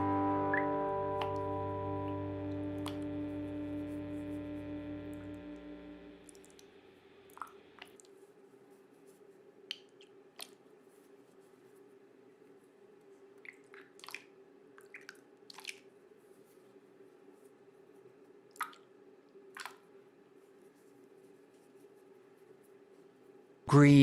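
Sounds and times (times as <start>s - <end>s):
faint steady hum: 0.0s - 24.0s
soft squishes and taps of toys: 7.4s - 8.4s, 9.1s - 11.7s, 13.0s - 16.6s, 18.5s - 20.0s.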